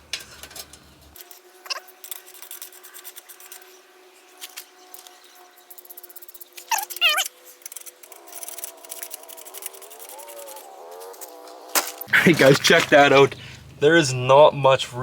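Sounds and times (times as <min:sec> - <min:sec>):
metal inserts clicking and scraping: 0:00.0 - 0:01.4
short rising squeak: 0:06.7 - 0:07.3.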